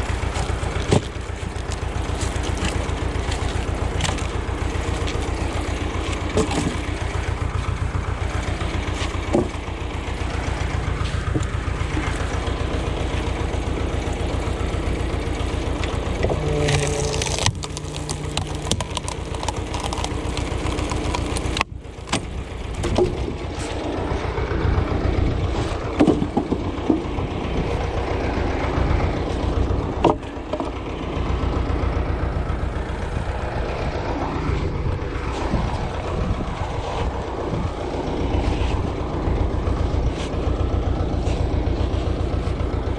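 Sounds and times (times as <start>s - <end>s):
sharp knocks and cracks: 0.0s - 7.2s, 8.9s - 9.7s, 16.2s - 23.4s, 26.0s - 27.1s
tractor engine running: 0.0s - 42.9s.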